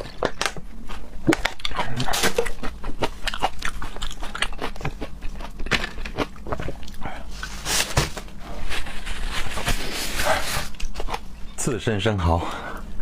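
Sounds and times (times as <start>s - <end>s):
wet chewing: 0.0s - 7.5s, 10.3s - 11.2s.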